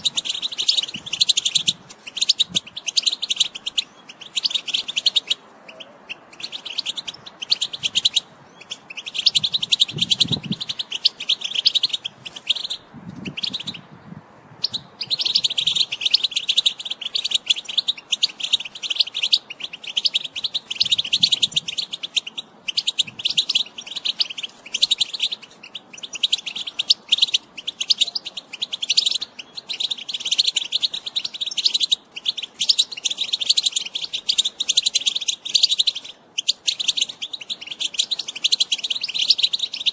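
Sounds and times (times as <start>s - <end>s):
finch twittering song: 0.0s - 39.9s.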